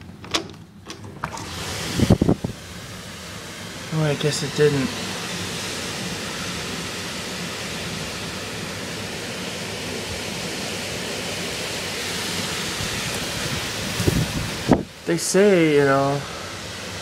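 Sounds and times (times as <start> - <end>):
heavy rain pouring: 1.2 - 17.0
strong wind: 1.3 - 2.8, 12.3 - 15.2.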